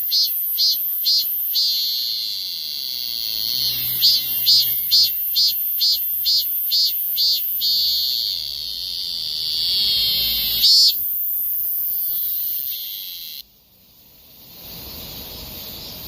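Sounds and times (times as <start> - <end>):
cicada buzzing: 0.0 - 16.0
faint background hiss: 13.4 - 16.0.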